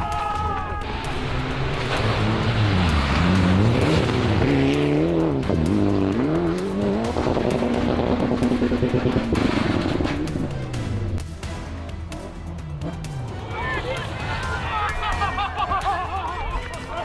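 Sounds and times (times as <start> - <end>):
rally car engine revving: 0.4 - 16.9.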